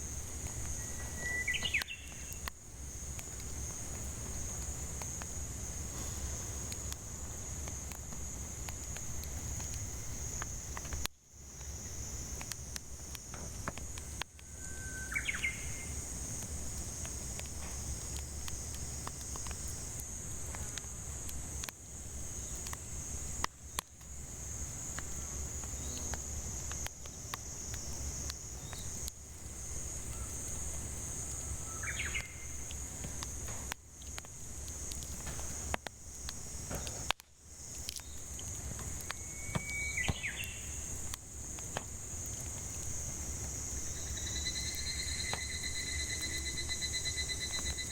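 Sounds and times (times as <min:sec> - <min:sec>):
cicadas droning: 0:00.0 - 0:47.9
wood fire crackling: 0:00.0 - 0:47.9
bird calling: 0:39.3 - 0:40.8.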